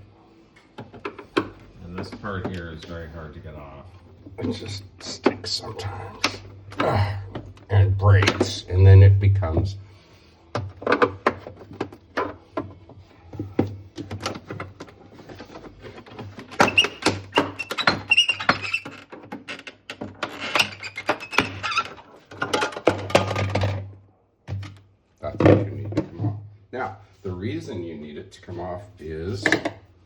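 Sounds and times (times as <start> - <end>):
plastic panel clicking and knocking: 10.6 - 23.9.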